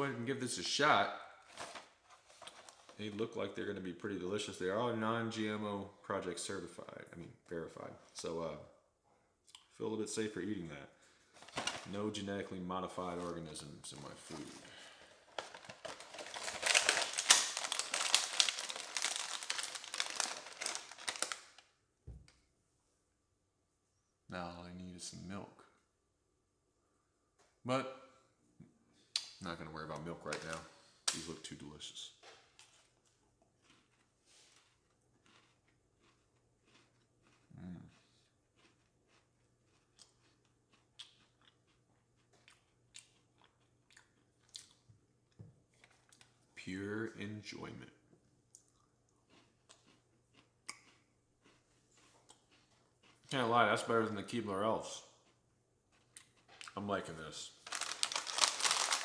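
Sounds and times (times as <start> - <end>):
plastic packaging crinkling: 1.5 - 3.0, 11.4 - 12.0, 14.4 - 21.6, 57.6 - 59.0
cookie crunching and chewing: 13.2 - 21.6, 32.6 - 44.9, 45.7 - 46.4, 48.5 - 59.0.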